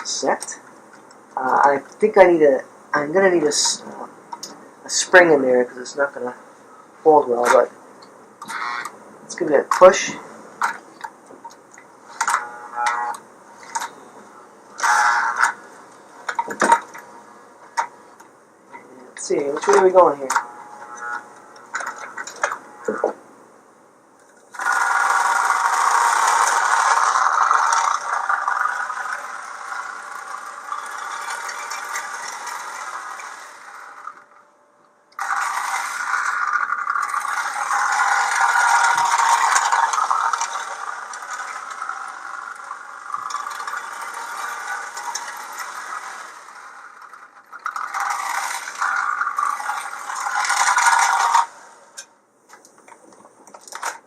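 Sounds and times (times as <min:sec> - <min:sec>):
toy train motor whining: 0:08.4 - 0:09.0, 0:12.1 - 0:17.0, 0:19.3 - 0:23.1, 0:24.3 - 0:34.5, 0:35.1 - 0:52.6
toy train rattling on rails: 0:08.4 - 0:14.0, 0:14.8 - 0:17.0, 0:18.7 - 0:23.1, 0:24.2 - 0:34.4, 0:35.1 - 0:54.0.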